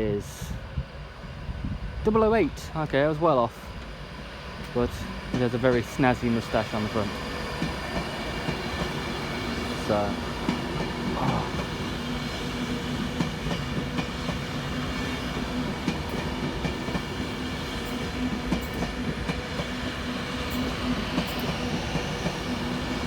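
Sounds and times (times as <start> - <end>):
electric train humming: 0.0 - 23.0
wheels clicking on track: 4.6 - 23.0.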